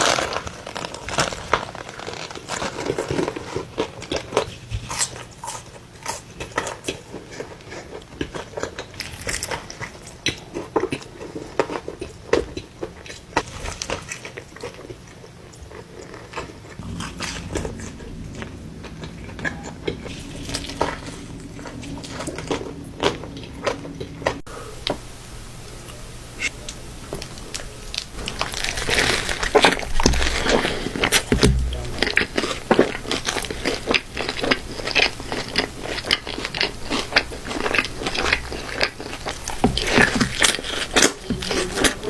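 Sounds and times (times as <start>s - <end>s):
crunchy chewing: 0.0s - 42.0s
low steady hum: 16.8s - 42.0s.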